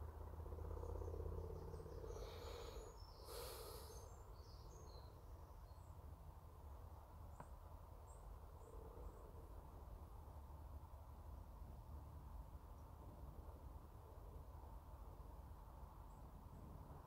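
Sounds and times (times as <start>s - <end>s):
low steady hum: 0.0s - 17.0s
faint bird chirps: 0.6s - 6.1s.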